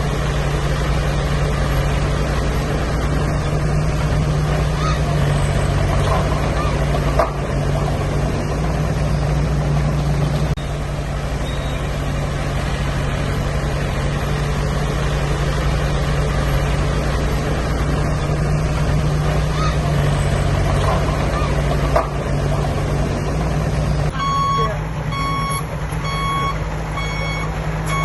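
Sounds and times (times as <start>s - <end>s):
heavy diesel engine running: 0.0s - 28.0s.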